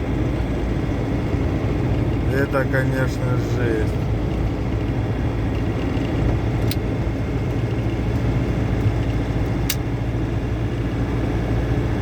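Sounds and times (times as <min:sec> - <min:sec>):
diesel engine drone: 0:00.0 - 0:12.0
road noise: 0:00.0 - 0:12.0
sharp clicks: 0:09.6 - 0:09.9.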